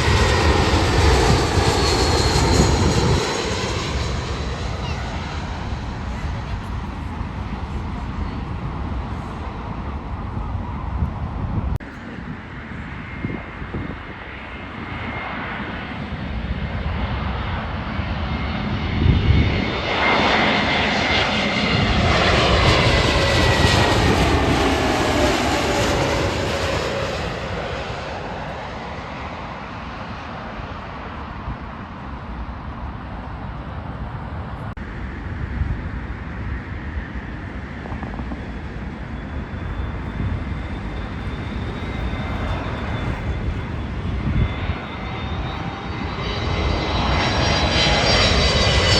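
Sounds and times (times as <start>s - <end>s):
jet airliner passing: 0.0s - 48.9s.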